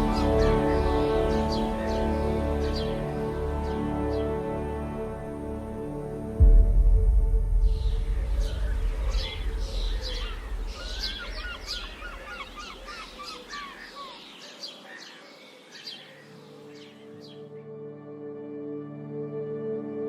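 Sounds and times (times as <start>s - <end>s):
small birds chirping and singing: 0.0s - 6.4s, 7.6s - 17.8s
loud low rumble: 6.3s - 12.8s.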